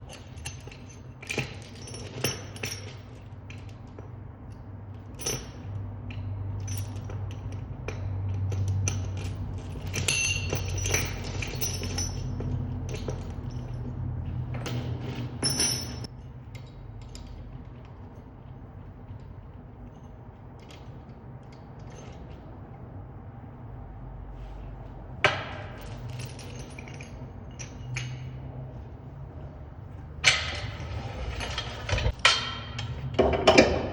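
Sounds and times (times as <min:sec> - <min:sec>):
light metallic clinks: 0:00.1 - 0:17.4.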